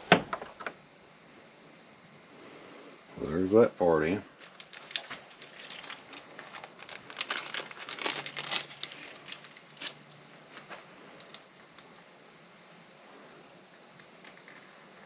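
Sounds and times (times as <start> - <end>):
pen parts clicking and crinkling: 4.4 - 10.2.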